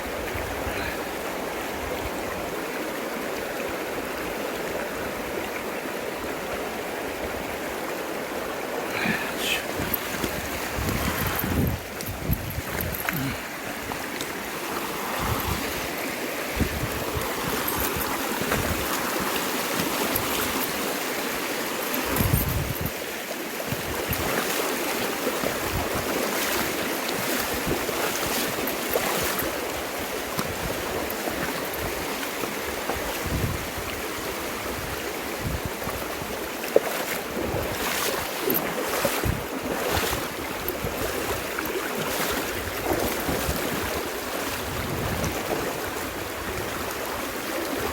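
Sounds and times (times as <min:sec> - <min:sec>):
river water rushing: 0:00.0 - 0:47.9
wind buffets on microphone: 0:09.4 - 0:14.1, 0:15.1 - 0:19.2, 0:22.0 - 0:23.0, 0:23.6 - 0:24.4, 0:25.4 - 0:26.7, 0:30.3 - 0:31.1, 0:32.9 - 0:36.4, 0:37.4 - 0:38.3, 0:38.9 - 0:47.9.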